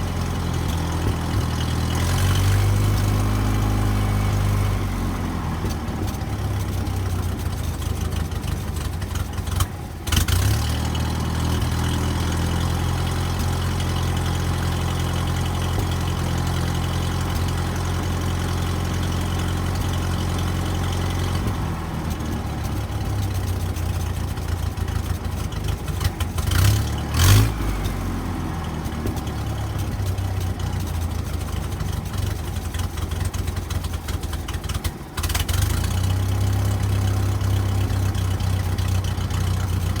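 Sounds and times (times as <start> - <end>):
engine idling: 0.0 - 40.0
engine revving: 0.0 - 40.0.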